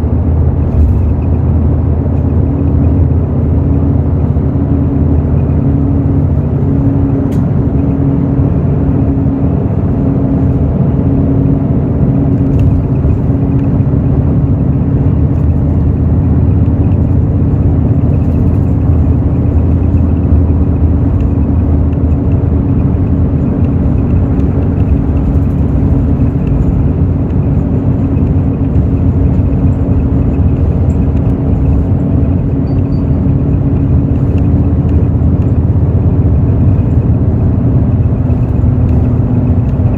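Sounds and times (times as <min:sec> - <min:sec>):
bus engine hum: 0:00.0 - 0:39.9
road noise: 0:00.0 - 0:39.9.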